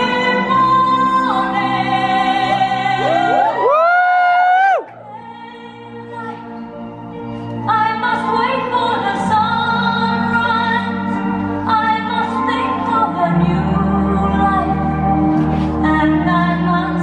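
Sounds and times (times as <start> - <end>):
operatic singing: 0.0 - 3.9.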